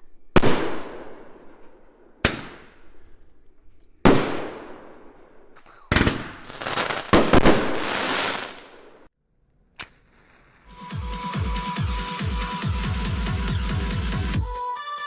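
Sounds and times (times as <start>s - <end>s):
fireworks bangs: 0.4s - 3.1s, 4.1s - 5.2s, 5.9s - 9.1s, 9.8s - 12.8s
fireworks crackle: 5.9s - 9.1s, 9.8s - 12.4s.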